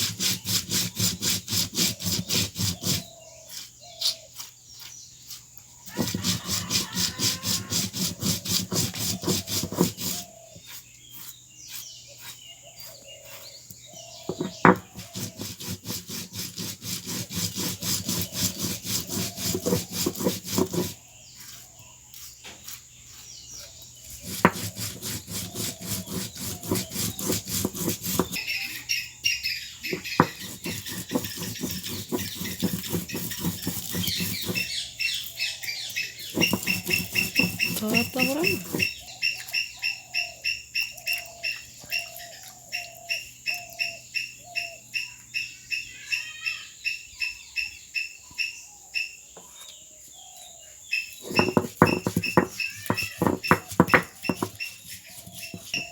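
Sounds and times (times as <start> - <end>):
rhythmic scraping strokes: 0.0 - 3.7, 4.4 - 12.4, 14.3 - 23.3, 24.0 - 28.9, 29.8 - 39.0, 51.2 - 55.9
birds chirping: 0.0 - 55.9.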